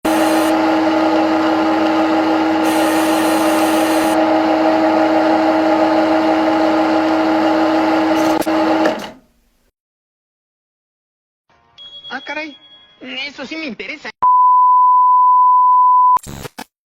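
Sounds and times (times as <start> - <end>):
lathe whining: 0.0 - 9.2.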